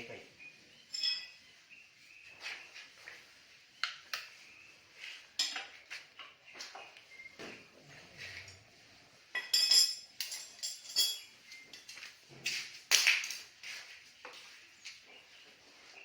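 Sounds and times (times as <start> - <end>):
metal tools clinking: 0.9 - 1.4, 5.4 - 5.7, 9.3 - 12.2.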